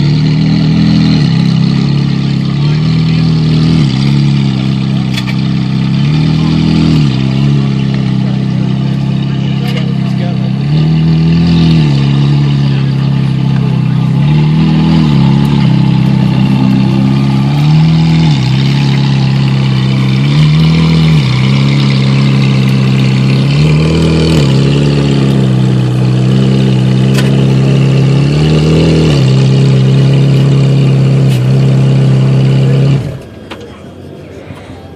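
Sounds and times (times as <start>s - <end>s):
car engine idling with throttle blips: 0.0s - 34.9s.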